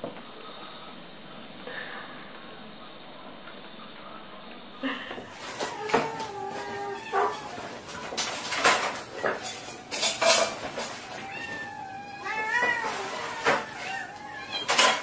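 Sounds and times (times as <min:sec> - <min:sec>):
dishes clinking: 0:05.3 - 0:15.0
kittens mewing: 0:05.3 - 0:15.0.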